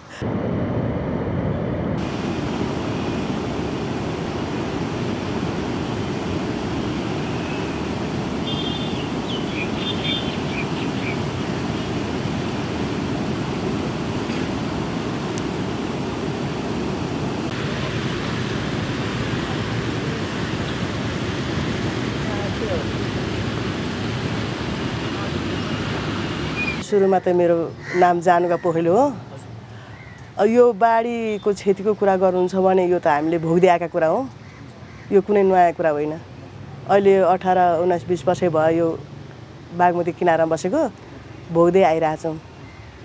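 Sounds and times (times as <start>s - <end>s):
floodwater rushing: 2.0s - 26.8s.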